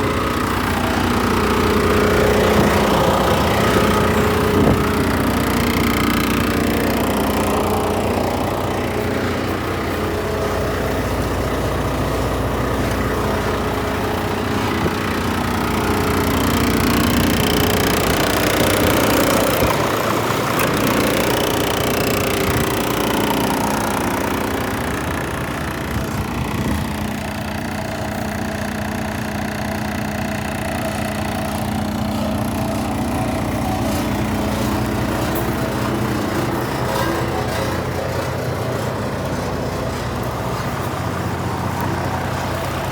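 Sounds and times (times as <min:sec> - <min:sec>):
diesel truck engine idling: 0:00.0 - 0:42.9.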